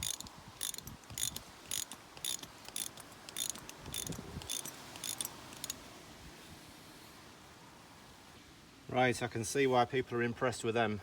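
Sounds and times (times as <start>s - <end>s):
ratchet wrench clicking: 0.0s - 5.8s.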